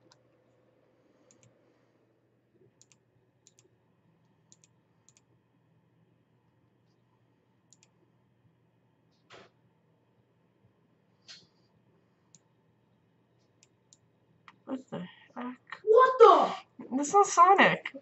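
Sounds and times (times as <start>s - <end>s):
computer mouse clicking: 1.2s - 1.6s, 2.7s - 5.3s, 7.7s - 8.0s, 12.3s - 12.5s, 13.4s - 14.6s.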